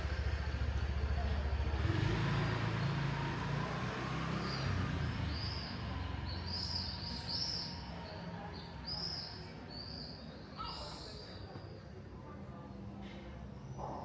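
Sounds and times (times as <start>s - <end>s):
passing traffic hum: 0.0s - 10.3s.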